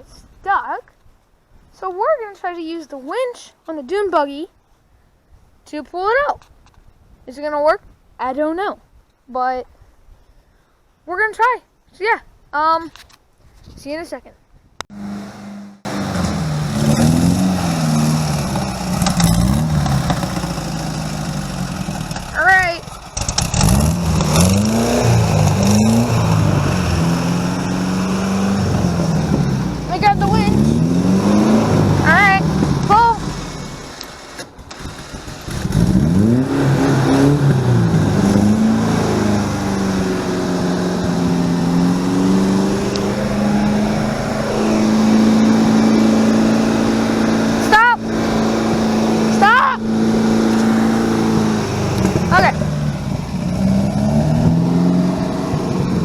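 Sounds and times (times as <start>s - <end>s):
vehicle engine revving: 14.9s - 56.0s.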